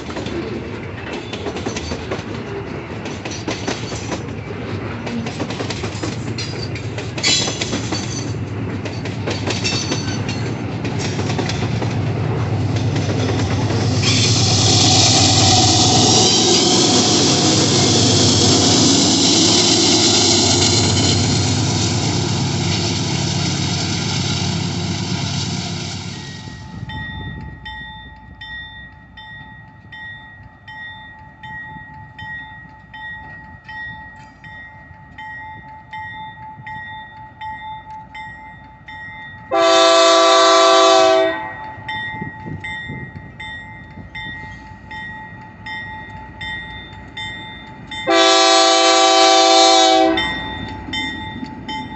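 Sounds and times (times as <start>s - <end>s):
train rumbling: 0.0s - 51.9s
locomotive air horn blast: 39.5s - 41.6s, 48.1s - 50.4s.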